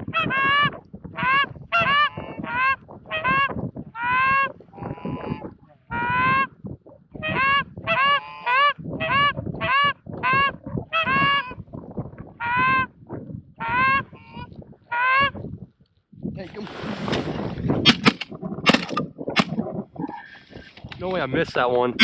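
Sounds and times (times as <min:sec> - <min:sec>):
goose honking: 0:00.0 - 0:06.5, 0:07.2 - 0:11.6, 0:12.4 - 0:12.9, 0:13.6 - 0:15.4.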